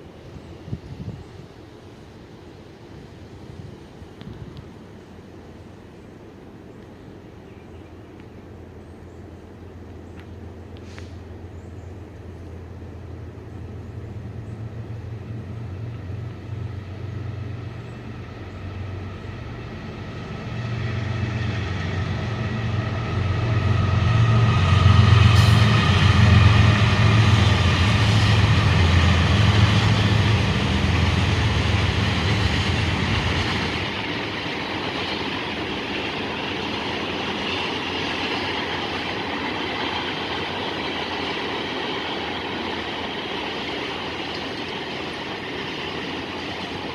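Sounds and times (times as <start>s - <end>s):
diesel locomotive rumble: 8.3s - 46.9s
train wheels rattling on rails: 13.6s - 46.9s.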